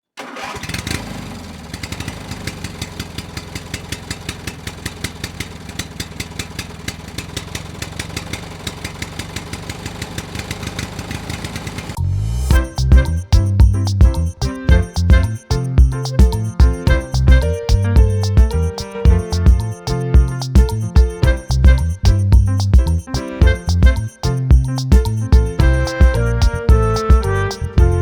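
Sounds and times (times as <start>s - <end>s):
engine idling: 0.3s - 28.0s
music: 12.0s - 28.0s
rapid regular ticking: 12.5s - 28.0s.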